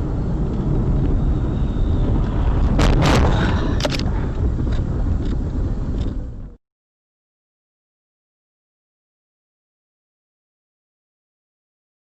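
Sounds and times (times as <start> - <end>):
car engine and road rumble: 0.0 - 6.6.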